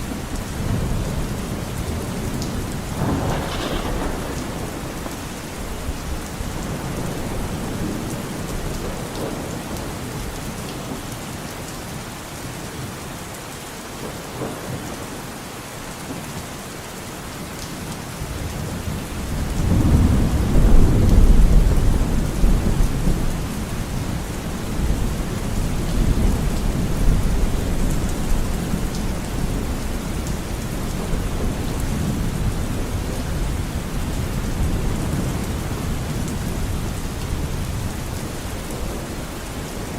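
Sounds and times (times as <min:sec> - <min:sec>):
thunder rumbling: 0:00.0 - 0:10.4, 0:18.6 - 0:39.9
steady rain falling: 0:00.0 - 0:39.9.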